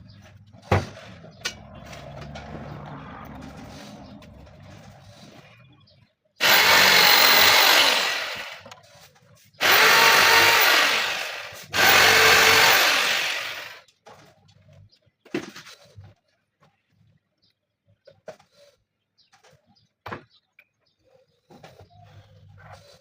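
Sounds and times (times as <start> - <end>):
power tool running: 6.4 - 8.8, 9.6 - 13.8.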